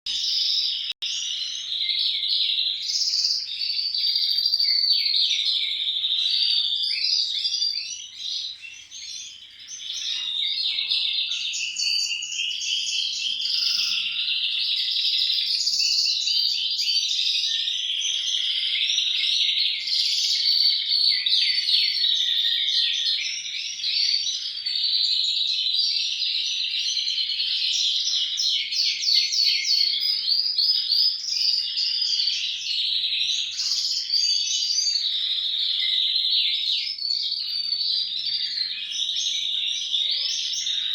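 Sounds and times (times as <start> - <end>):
finch singing trills and chirps: 0.1 - 40.9.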